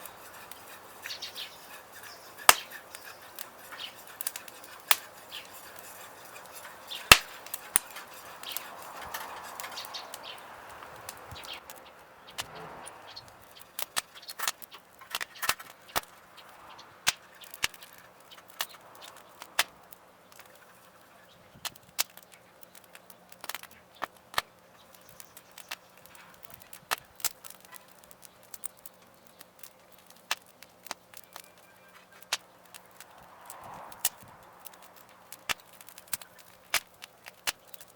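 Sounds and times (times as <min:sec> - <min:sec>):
wood fire crackling and popping: 0:00.0 - 0:37.9.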